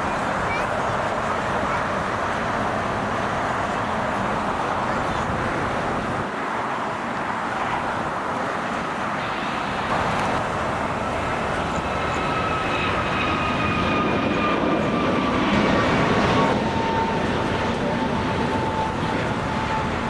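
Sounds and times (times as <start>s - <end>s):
jet airliner passing: 0.0s - 20.0s
whining engine tones: 9.2s - 20.0s.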